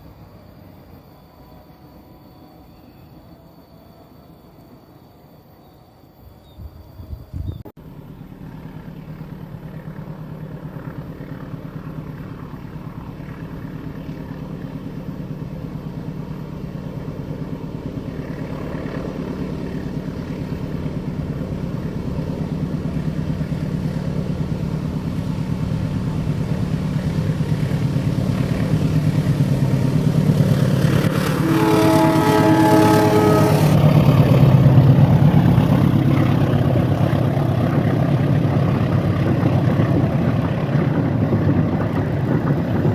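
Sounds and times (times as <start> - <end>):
diesel locomotive engine drone: 0.0 - 42.9
train passing: 0.0 - 42.9
train horn: 30.8 - 34.8.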